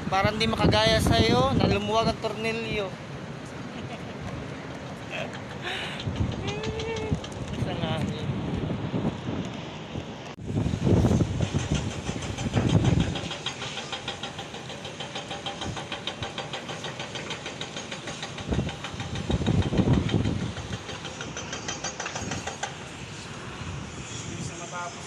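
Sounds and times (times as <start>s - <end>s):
wind buffeting microphone: 0.0s - 2.9s, 4.2s - 14.4s, 18.4s - 24.8s
exhaust fan rhythmic ticking: 5.1s - 7.5s, 10.6s - 22.8s.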